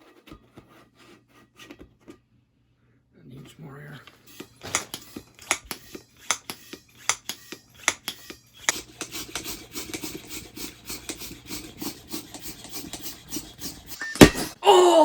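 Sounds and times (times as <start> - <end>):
hand pump rasping strokes: 4.1 - 14.6.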